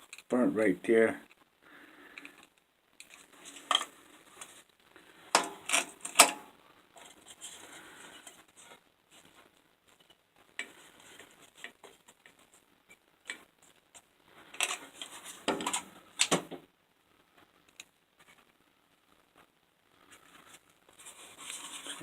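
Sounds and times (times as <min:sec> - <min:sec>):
grinder parts clicking and clattering: 0:05.4 - 0:06.4.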